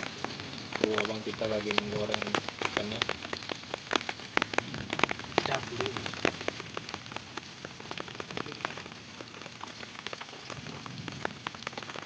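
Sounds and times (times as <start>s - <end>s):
heavy rain falling: 0.0s - 12.0s
sharp ticks of raindrops: 0.0s - 12.0s.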